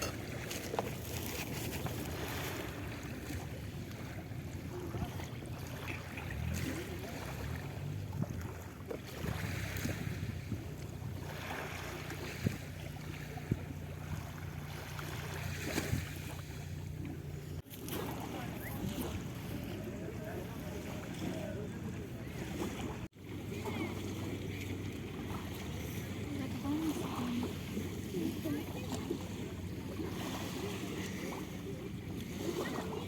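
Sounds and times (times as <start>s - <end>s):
wind on microphone: 12.2s - 13.8s.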